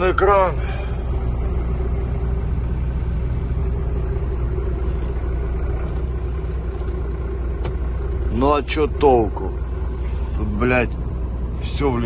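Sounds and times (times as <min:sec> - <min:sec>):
diesel truck engine idling: 0:00.0 - 0:12.0
faint steady hum: 0:00.0 - 0:12.0.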